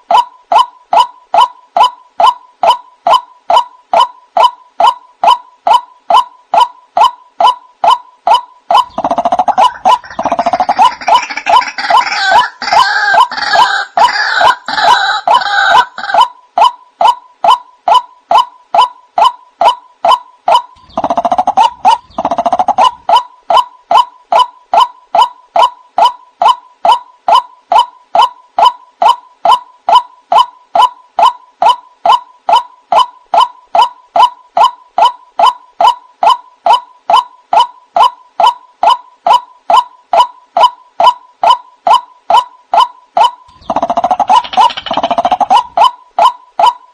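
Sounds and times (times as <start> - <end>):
waterhen calling: 7.4 - 18.5, 42.8 - 46.8.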